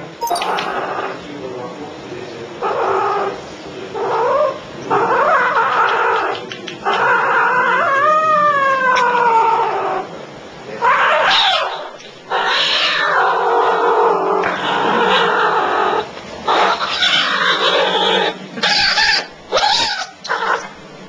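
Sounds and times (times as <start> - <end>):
kitten growling and yowling: 10.8 - 20.6.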